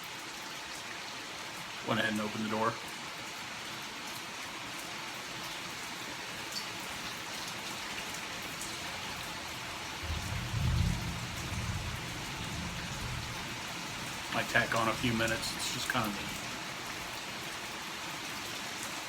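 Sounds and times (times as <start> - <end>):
steady rain falling: 0.0 - 19.0
drips ticking: 6.4 - 17.7.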